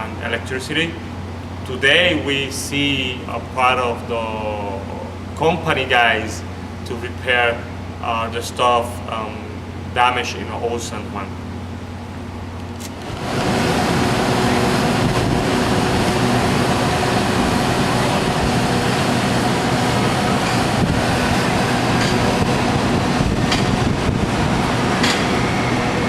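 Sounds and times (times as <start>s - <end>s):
engine running loudly: 12.8s - 26.0s.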